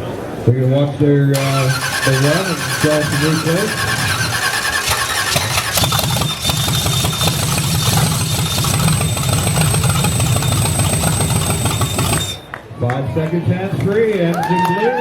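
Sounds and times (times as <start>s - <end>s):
engine running: 1.3s - 12.5s
thin high whine: 1.4s - 12.5s.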